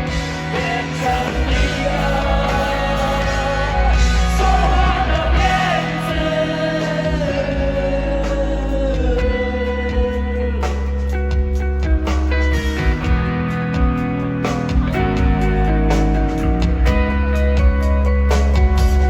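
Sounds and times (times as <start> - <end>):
live rock band playing: 0.0 - 19.0
person singing: 0.4 - 11.2.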